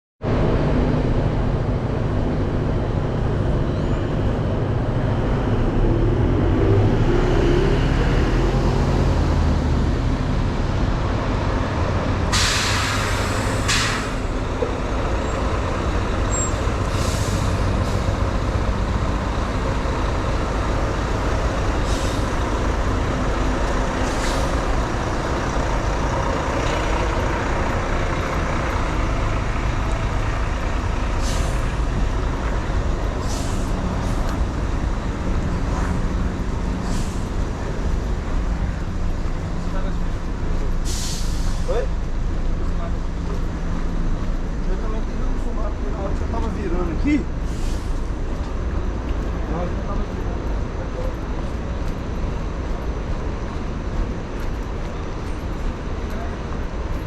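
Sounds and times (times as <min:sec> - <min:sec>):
diesel bus engine running: 0:00.2 - 0:57.0
air brake hisses: 0:12.3 - 0:14.3, 0:16.4 - 0:18.1, 0:21.8 - 0:22.4, 0:31.2 - 0:31.8, 0:33.2 - 0:34.2, 0:36.8 - 0:37.4, 0:40.8 - 0:41.8, 0:47.4 - 0:48.1.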